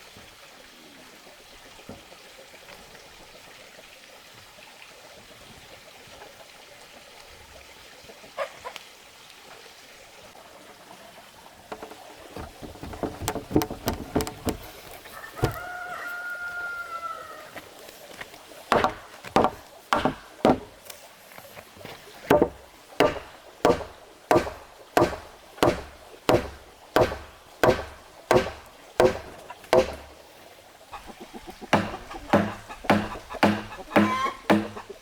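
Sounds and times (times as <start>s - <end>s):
sharp knocks: 11.7s - 14.8s, 15.4s - 15.6s, 18.7s - 20.8s, 22.3s - 30.2s, 31.8s - 34.9s
rooster crowing: 15.1s - 17.6s.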